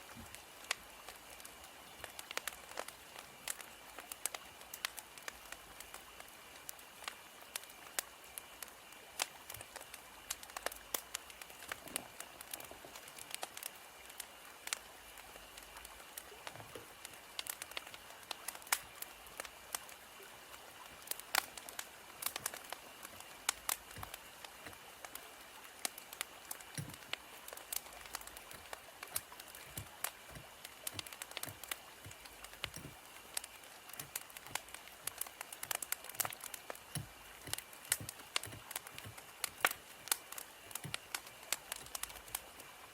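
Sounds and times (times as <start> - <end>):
faint steady hiss: 0.0 - 42.9
wood fire crackling: 0.0 - 42.9.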